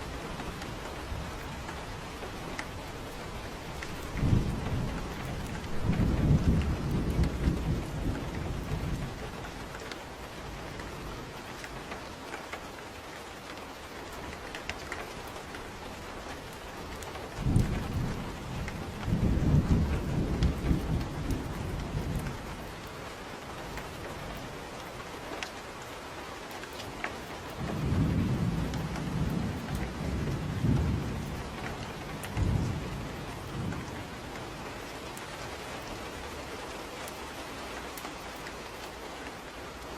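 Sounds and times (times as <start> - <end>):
rolling thunder: 0.0 - 9.5, 17.3 - 22.9, 27.6 - 35.2
steady rain: 0.0 - 39.9.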